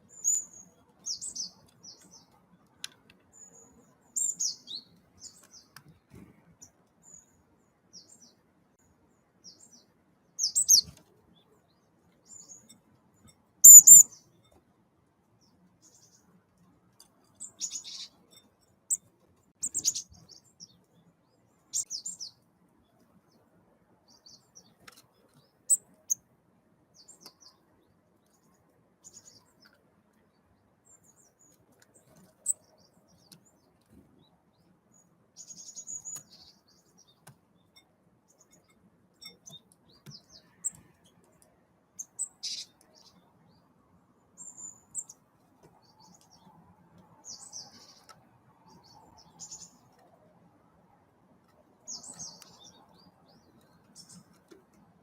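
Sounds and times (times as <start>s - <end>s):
birds chirping: 9.1s - 14.4s, 17.4s - 19.0s, 19.6s - 22.4s, 30.8s - 41.4s, 42.0s - 50.2s, 51.6s - 55.0s.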